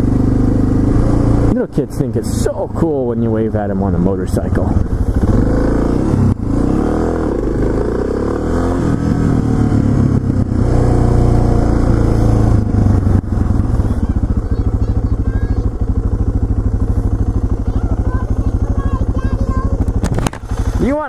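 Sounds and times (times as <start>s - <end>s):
motorcycle engine revving and idling: 0.0s - 21.0s.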